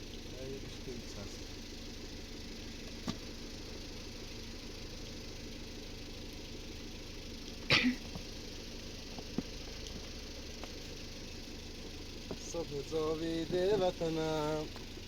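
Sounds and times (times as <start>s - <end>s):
steady low hum: 0.0s - 15.0s
person sneezing: 7.7s - 8.1s.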